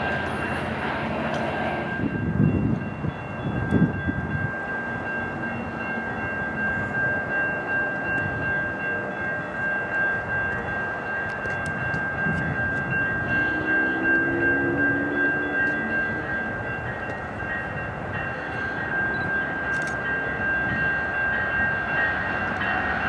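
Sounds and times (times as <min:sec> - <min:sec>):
steady high tone: 0:00.0 - 0:23.0
train wheels rumbling: 0:00.0 - 0:23.0.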